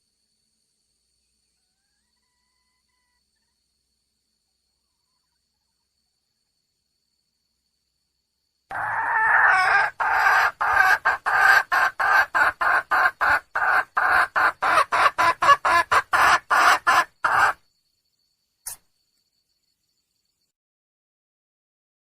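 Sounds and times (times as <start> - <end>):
hen clucking calls: 8.7 - 17.6.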